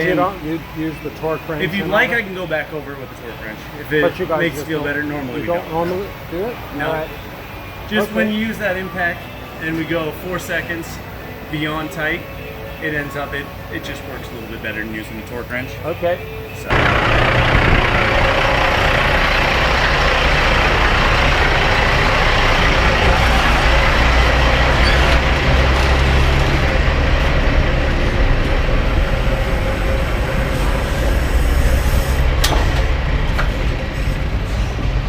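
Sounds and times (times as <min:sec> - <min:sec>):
road noise: 0:00.0 - 0:35.0
truck diesel engine running: 0:12.1 - 0:35.0.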